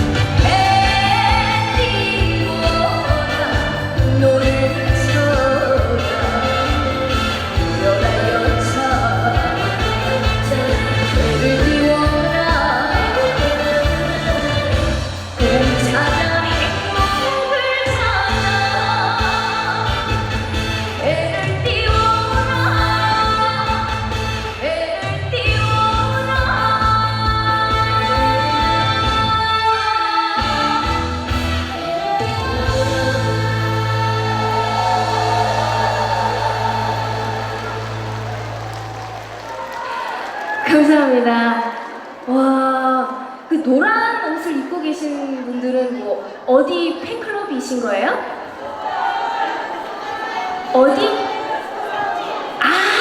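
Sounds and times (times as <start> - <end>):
backing track with bass line: 0.0 - 17.3
woman singing: 0.0 - 37.8
drum beat and backing music: 0.0 - 39.6.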